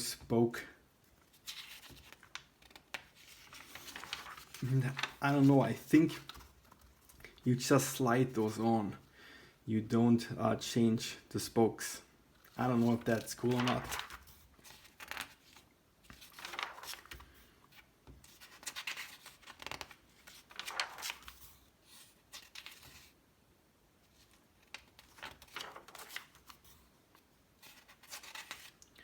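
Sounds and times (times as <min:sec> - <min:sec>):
magazine pages rustling: 0:01.2 - 0:08.7, 0:12.4 - 0:23.2, 0:24.1 - 0:29.0.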